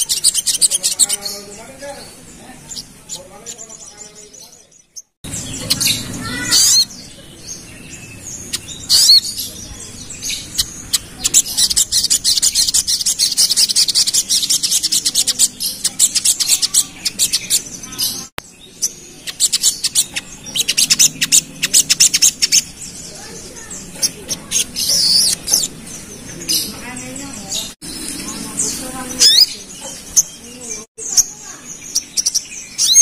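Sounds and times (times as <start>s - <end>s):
sunbird singing high trills: 0.0s - 33.0s.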